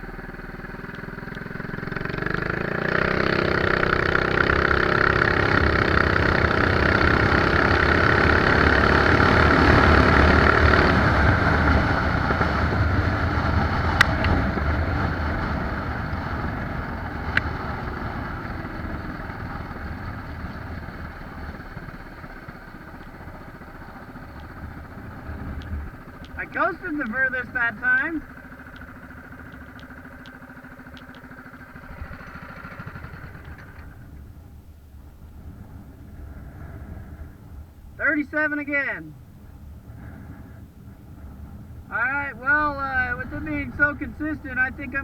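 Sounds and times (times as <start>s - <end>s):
small engine at full throttle: 0.0s - 34.2s
wind and rolling noise: 0.0s - 45.0s
sharp clicks: 13.9s - 14.7s, 25.4s - 34.2s.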